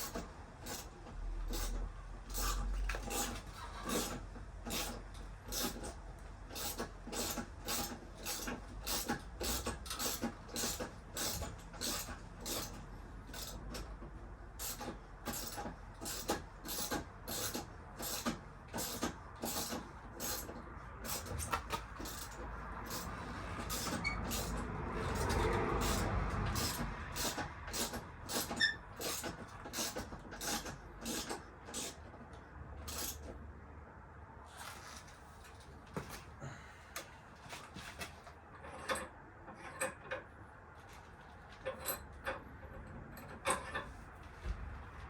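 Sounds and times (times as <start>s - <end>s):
light clicks and knocks of tools: 36.9s - 44.7s.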